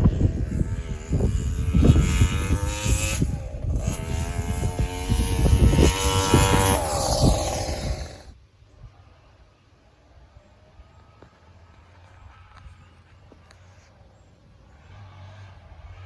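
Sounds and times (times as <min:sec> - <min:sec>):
two-stroke engine revving: 0:00.0 - 0:08.4.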